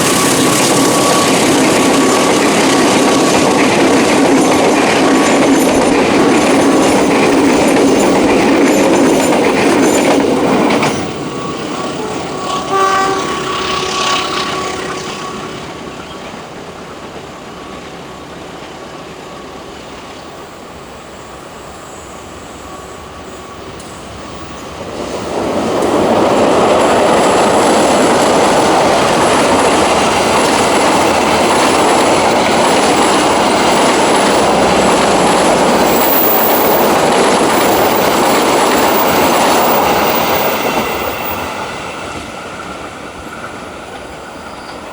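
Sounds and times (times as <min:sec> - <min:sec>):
rumble of train wheels: 0:00.0 - 0:44.9
train running past: 0:00.0 - 0:44.9
train horn blast: 0:12.1 - 0:16.0.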